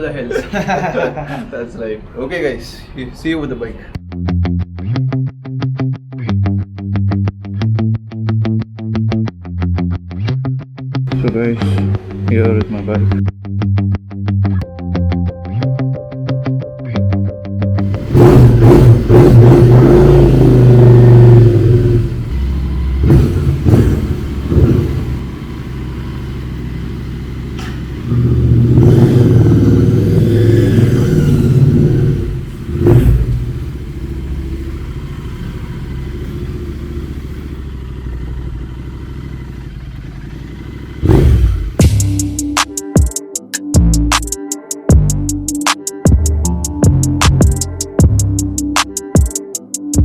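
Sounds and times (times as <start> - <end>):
motorcycle engine idling and revving: 17.8 - 43.1, 46.1 - 49.4.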